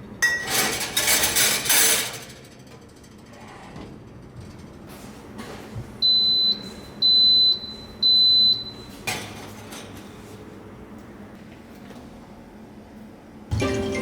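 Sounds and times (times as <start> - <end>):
oven beeper high beeps: 6.0 - 9.0.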